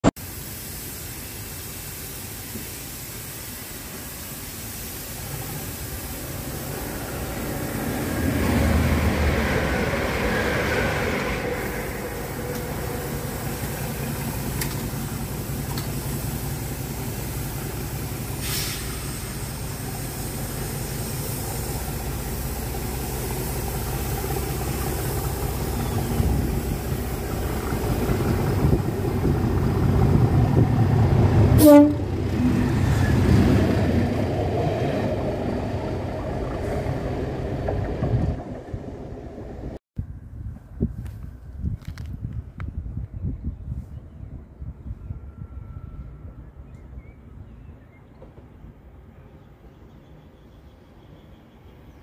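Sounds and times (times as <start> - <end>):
diesel locomotive engine drone: 0.0 - 52.0
electric train passing: 4.7 - 39.8.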